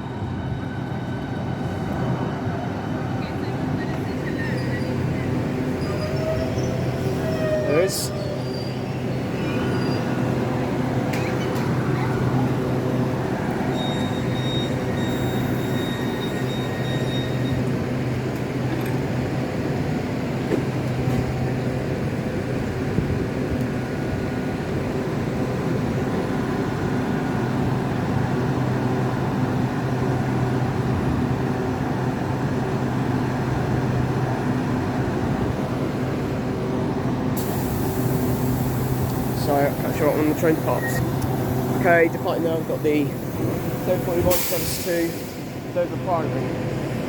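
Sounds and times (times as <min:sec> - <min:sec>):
electric train humming: 0:00.0 - 0:47.0.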